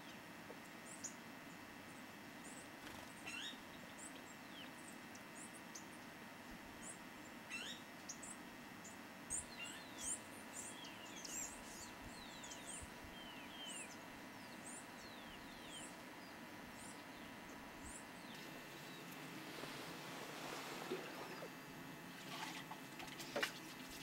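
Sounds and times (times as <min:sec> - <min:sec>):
birds chirping: 0:06.8 - 0:21.7.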